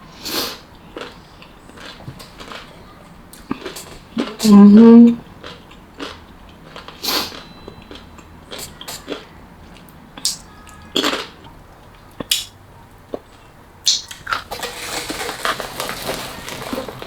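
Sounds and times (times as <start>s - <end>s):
wet mouth clicks and chewing: 5.4s - 14.5s
crunchy bites: 13.9s - 17.0s.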